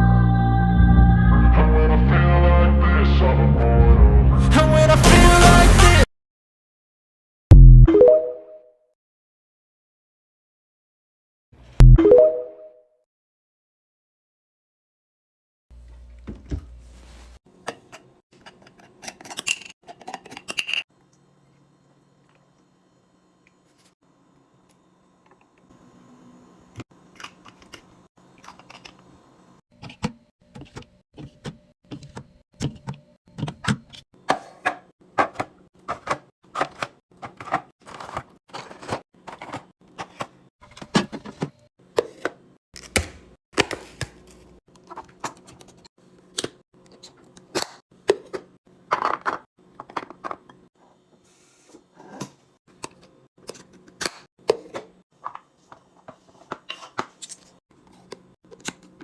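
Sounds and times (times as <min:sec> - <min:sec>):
packaged items clicking and knocking: 0:29.8 - 0:45.8, 0:46.4 - 0:50.6.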